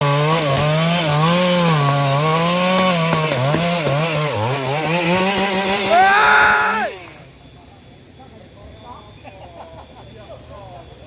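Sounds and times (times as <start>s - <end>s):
chainsaw cutting wood: 0.0s - 7.2s.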